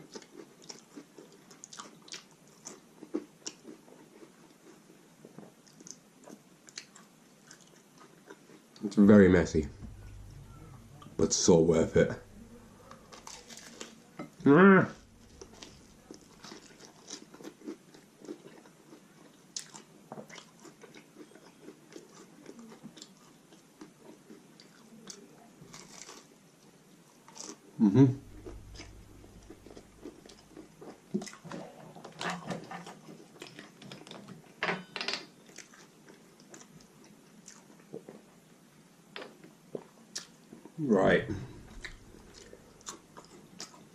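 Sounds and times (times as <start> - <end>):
man chewing and biting food: 0.0 - 9.0, 12.2 - 14.0, 15.0 - 26.3, 28.2 - 34.3, 35.5 - 38.2, 41.4 - 43.9.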